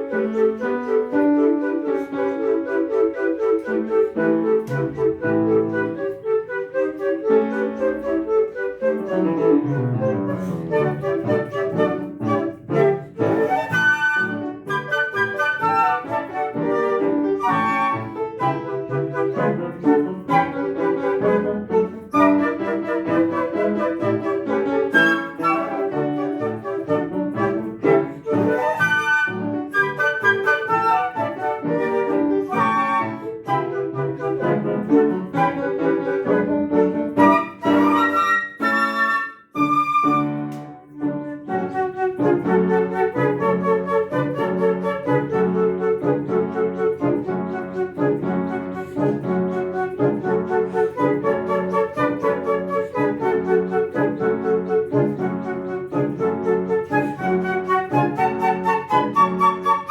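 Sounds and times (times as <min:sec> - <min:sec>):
flute duet: 0:00.0 - 0:59.9
piano accompaniment: 0:00.0 - 0:59.9.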